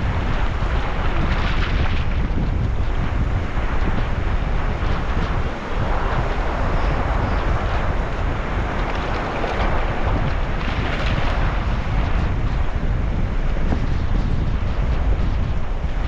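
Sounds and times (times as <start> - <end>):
sea waves washing: 0.0 - 14.8
wind buffeting microphone: 0.0 - 16.0.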